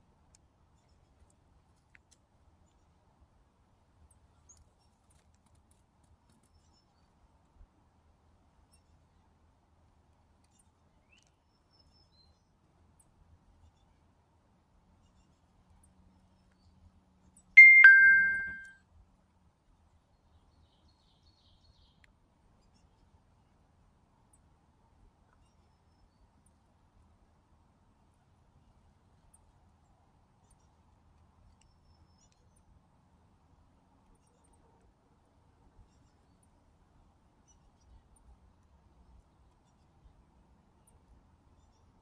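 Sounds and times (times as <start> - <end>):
two-note ding-dong chime: 17.6 - 18.7.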